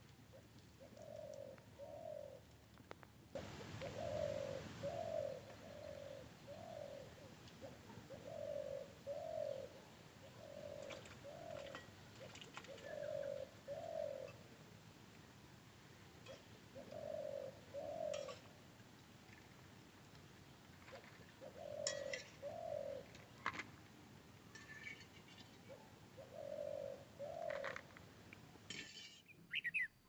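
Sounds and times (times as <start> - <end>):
background hiss: 0.0 - 20.7
bird calling with hollow notes: 3.4 - 14.4, 16.3 - 18.4, 20.9 - 23.4, 25.3 - 28.0, 29.2 - 30.0.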